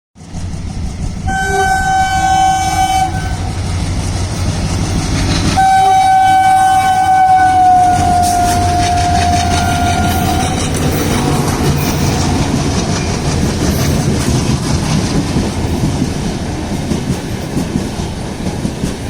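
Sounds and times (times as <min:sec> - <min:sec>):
low rumble of train engine: 0:00.2 - 0:19.0
locomotive horn blasts: 0:01.3 - 0:03.5, 0:05.6 - 0:10.7.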